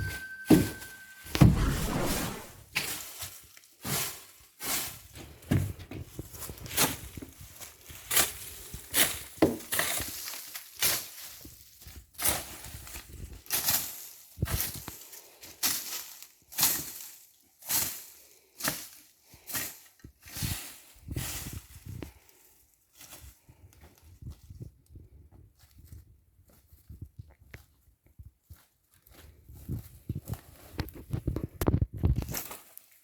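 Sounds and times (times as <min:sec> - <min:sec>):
crunching strokes in dry vegetation: 0:01.3 - 0:02.6.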